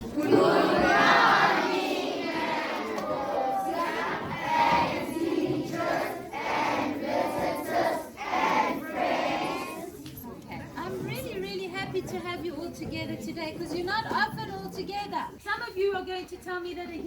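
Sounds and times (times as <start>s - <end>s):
children shouting together: 0.2s - 5.2s.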